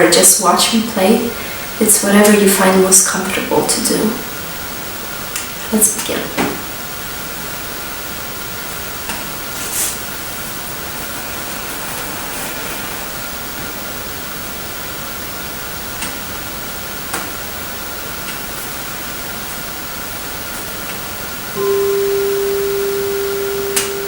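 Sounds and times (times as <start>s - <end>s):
microphone hiss: 0.0s - 24.0s
singing bowl tone: 21.6s - 24.0s.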